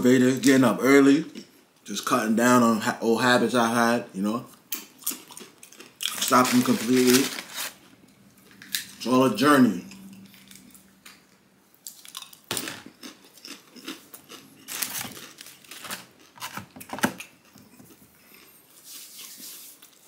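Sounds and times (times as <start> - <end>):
person chewing food: 4.6 - 6.4, 9.8 - 16.6, 17.2 - 20.0.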